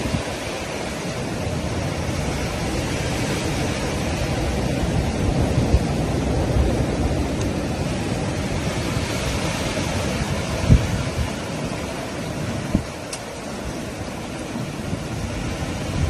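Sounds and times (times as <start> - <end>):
strong blizzard wind: 0.0 - 16.0
wind buffeting microphone: 0.0 - 16.0.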